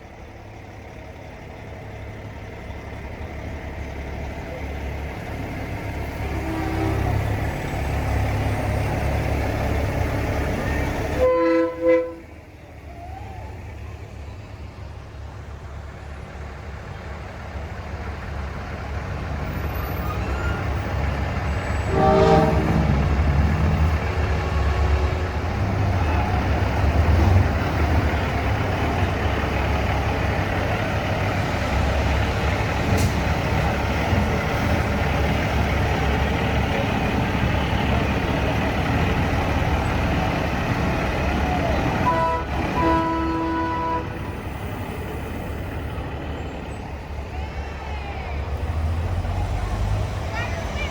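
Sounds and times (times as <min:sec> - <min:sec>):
truck engines rumbling: 0:00.0 - 0:50.9
air horn blast: 0:06.2 - 0:07.3, 0:11.2 - 0:12.4, 0:21.8 - 0:23.1, 0:42.0 - 0:44.4.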